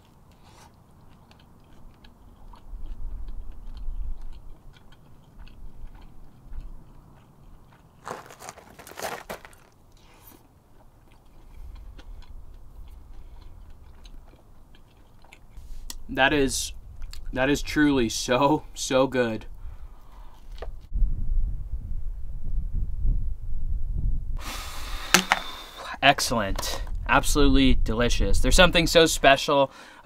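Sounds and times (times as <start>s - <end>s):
person chewing sandwich: 0.0s - 16.0s
low rumbles: 10.7s - 20.1s.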